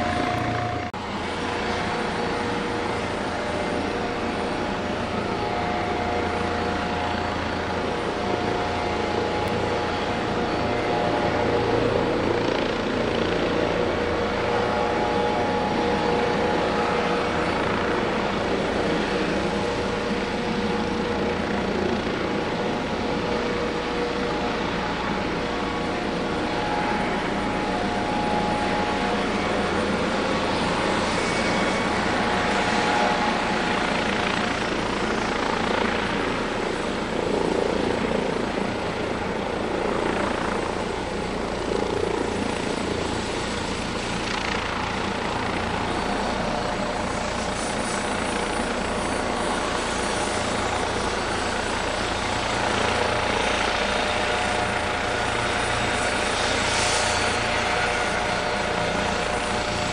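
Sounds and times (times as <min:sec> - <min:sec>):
helicopter rotor noise: 0:00.0 - 0:59.9
helicopter turbine whine: 0:00.0 - 0:59.9.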